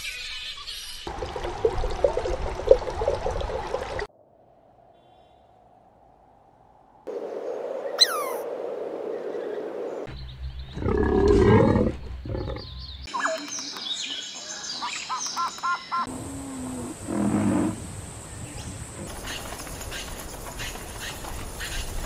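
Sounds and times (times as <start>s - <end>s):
high chirping calls: 7.9s - 8.4s.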